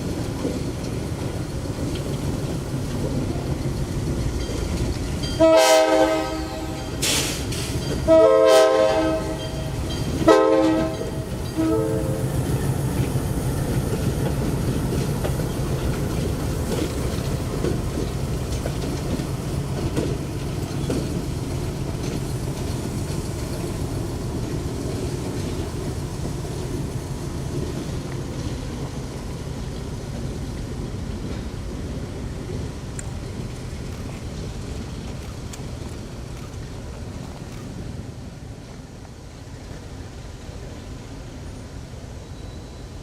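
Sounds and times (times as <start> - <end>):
train rumbling on rails: 0.0 - 43.0
diesel locomotive horn blasts: 5.4 - 7.4, 8.0 - 12.4.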